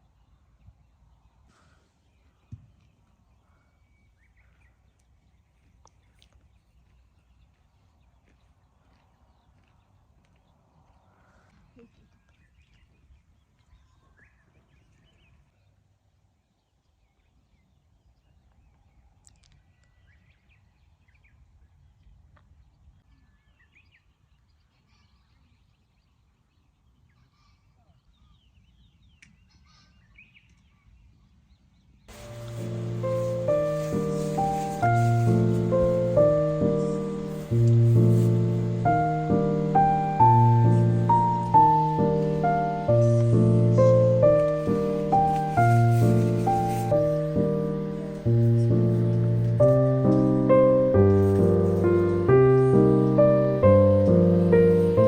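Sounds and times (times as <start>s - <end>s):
small birds chirping: 16.6s - 55.0s.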